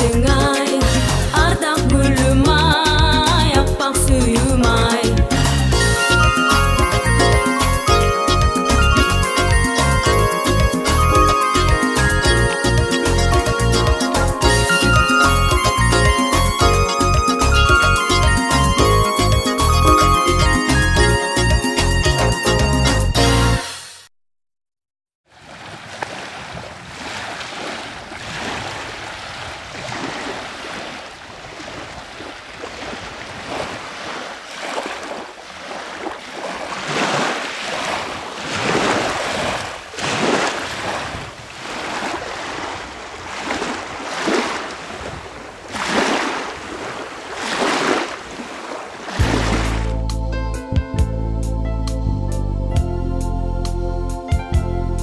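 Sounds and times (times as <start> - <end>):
waves washing onto shore: 25.3 - 50.0.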